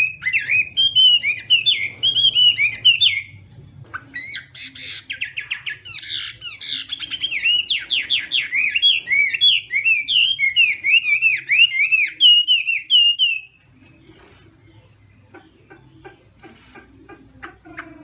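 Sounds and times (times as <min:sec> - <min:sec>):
songbird singing varied song: 0:04.1 - 0:13.6.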